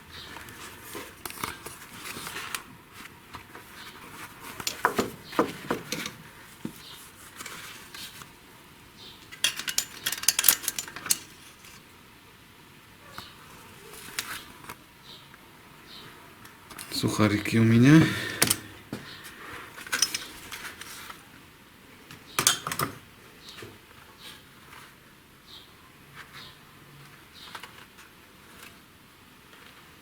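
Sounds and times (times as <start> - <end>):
metal clicks and clinks: 9.3 - 11.8, 18.4 - 18.7, 19.9 - 20.6.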